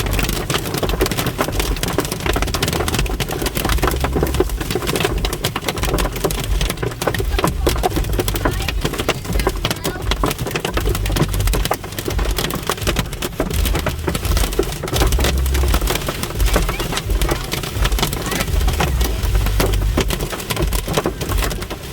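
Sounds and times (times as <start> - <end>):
hail and heavy rain hitting: 0.0 - 21.9
low rumble: 6.6 - 21.7.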